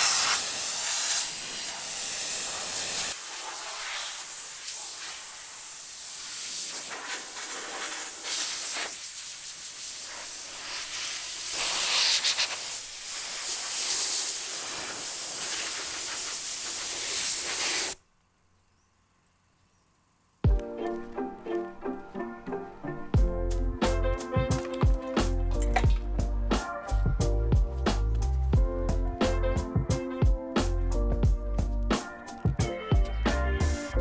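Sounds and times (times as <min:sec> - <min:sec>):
pressure washer jet hissing: 0:00.0 - 0:18.0.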